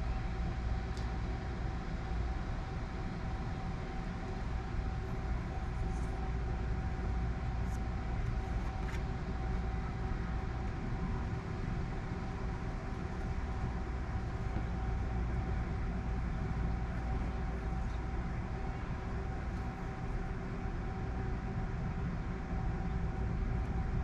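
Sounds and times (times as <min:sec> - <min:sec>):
steady low rumble: 0:00.0 - 0:24.0
thin constant hum: 0:00.0 - 0:24.0.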